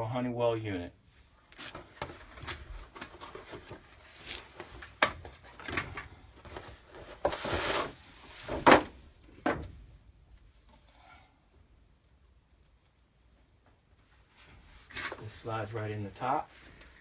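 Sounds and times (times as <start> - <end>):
plastic scrape: 7.0 - 8.6.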